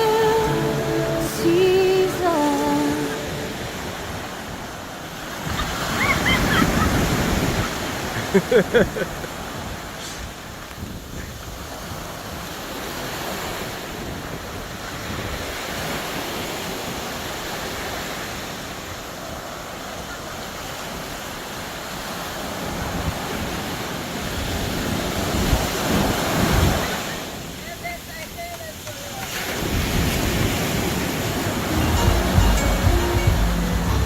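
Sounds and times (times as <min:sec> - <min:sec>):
waves washing onto beach: 0:00.0 - 0:34.0.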